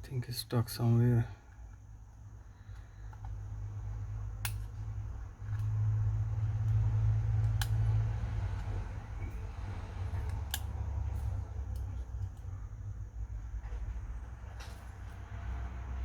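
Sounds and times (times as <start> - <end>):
sharp tool clicks: 4.4 - 4.7, 6.6 - 9.1, 10.2 - 11.0.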